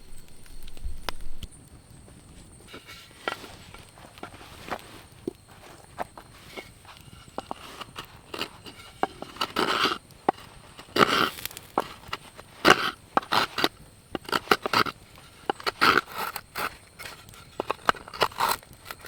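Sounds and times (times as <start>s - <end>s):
blade scraping wood: 2.6s - 19.0s.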